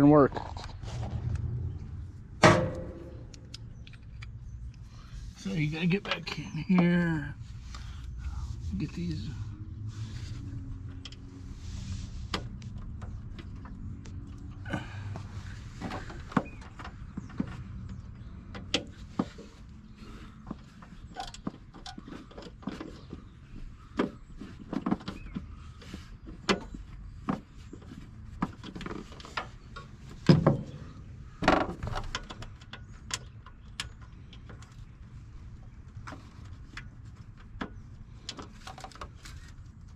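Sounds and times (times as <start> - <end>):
loud knocks: 2.4 - 3.3
tools clanking on mower deck: 2.4 - 3.9.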